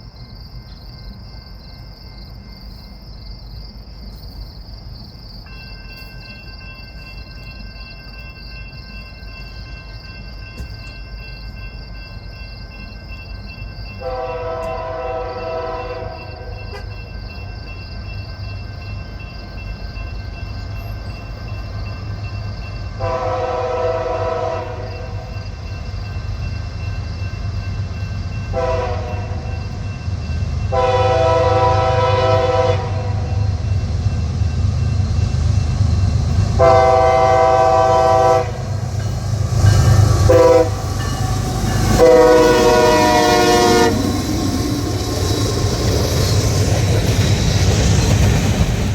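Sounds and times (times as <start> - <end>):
train engine and rail rumble: 0.0 - 48.9
locomotive air horn: 14.0 - 16.9, 23.0 - 25.2, 28.5 - 29.5, 30.7 - 33.4, 36.6 - 38.8, 39.7 - 44.2.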